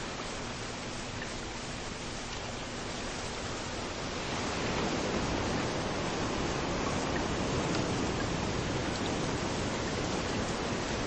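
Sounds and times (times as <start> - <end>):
steady rain falling: 0.0 - 11.0
surf washing onto beach: 3.4 - 11.0.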